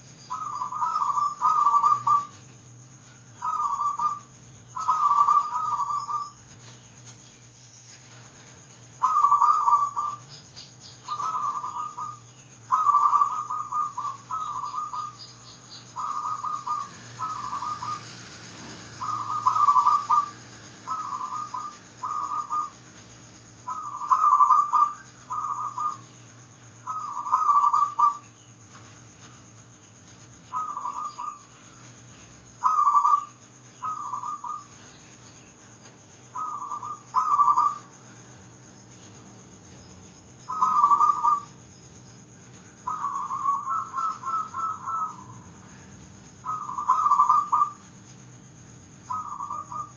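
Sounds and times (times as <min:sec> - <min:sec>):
dove cooing: 0:00.0 - 0:02.5, 0:03.4 - 0:06.5, 0:09.0 - 0:10.4, 0:11.0 - 0:28.3, 0:30.5 - 0:35.0, 0:36.3 - 0:38.1, 0:40.4 - 0:41.6, 0:42.8 - 0:47.9, 0:49.0 - 0:49.9.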